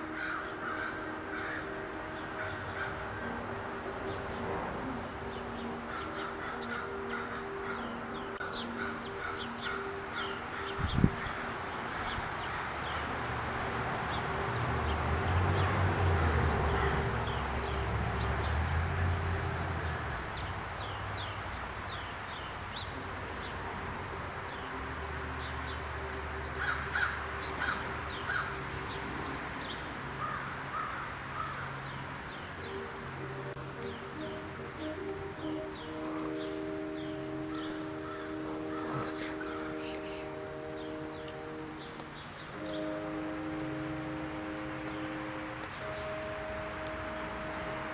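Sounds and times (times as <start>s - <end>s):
birds chirping: 0.0s - 47.9s
harsh low bird calls: 5.2s - 13.4s, 26.5s - 32.9s, 33.8s - 47.9s.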